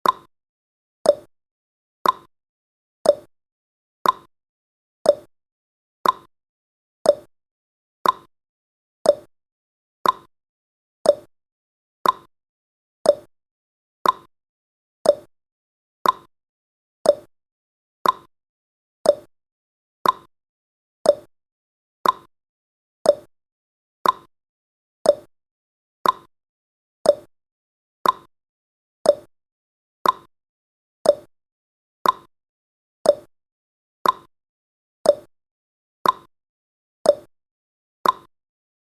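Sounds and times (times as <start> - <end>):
timer ticking: 0.0 - 0.3, 1.1 - 1.3, 2.0 - 2.3, 3.0 - 3.3, 4.0 - 4.3, 5.0 - 5.3, 6.0 - 6.3, 7.0 - 7.3, 8.0 - 8.3, 9.0 - 9.3, 10.0 - 10.3, 11.0 - 11.3, 12.0 - 12.3, 13.0 - 13.3, 14.0 - 14.3, 15.0 - 15.3, 16.0 - 16.3, 17.0 - 17.3, 18.0 - 18.3, 19.0 - 19.3, 20.0 - 20.3, 21.0 - 21.3, 22.0 - 22.3, 23.0 - 23.3, 24.0 - 24.3, 25.0 - 25.3, 26.0 - 26.3, 27.0 - 27.3, 28.0 - 28.3, 29.0 - 29.3, 30.0 - 30.3, 31.0 - 31.3, 32.0 - 32.3, 33.0 - 33.3, 34.0 - 34.3, 35.0 - 35.3, 36.0 - 36.3, 37.1 - 37.3, 38.0 - 38.3.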